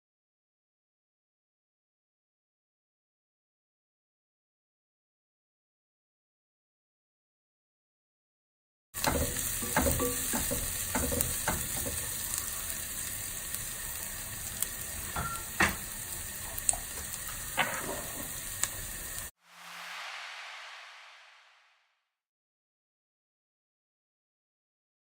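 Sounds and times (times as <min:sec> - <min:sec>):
food sizzling in oil: 0:09.0 - 0:19.8.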